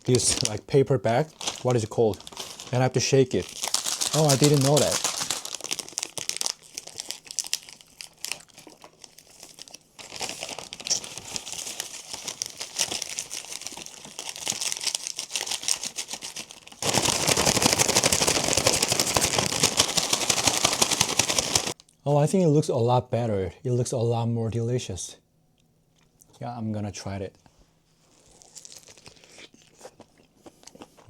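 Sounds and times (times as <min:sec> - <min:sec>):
food rustling in paper bag: 0:00.0 - 0:21.8
paper bag crinkling: 0:00.0 - 0:21.8.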